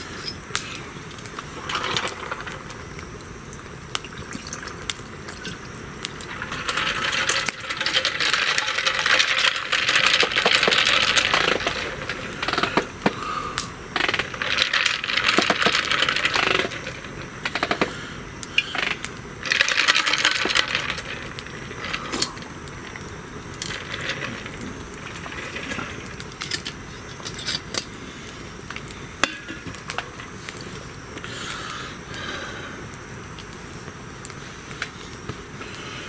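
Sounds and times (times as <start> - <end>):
campfire crackling and popping: 0.0 - 36.0
fire hissing: 0.0 - 36.0.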